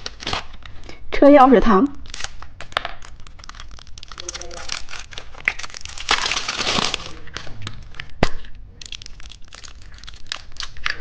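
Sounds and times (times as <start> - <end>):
plastic packaging crinkling and tearing: 0.0 - 1.0, 2.0 - 11.0
small irregular clicks: 2.2 - 6.0, 8.8 - 11.0.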